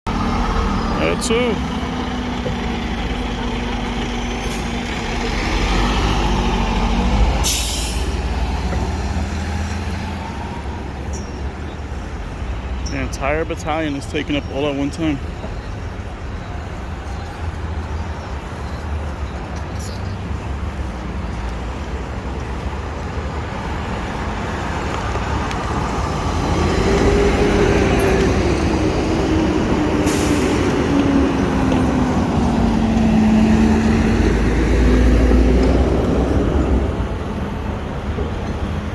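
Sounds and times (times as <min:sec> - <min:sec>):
diesel engines rumbling: 0:00.0 - 0:38.9
air brake hiss: 0:07.4 - 0:08.2, 0:30.0 - 0:30.6.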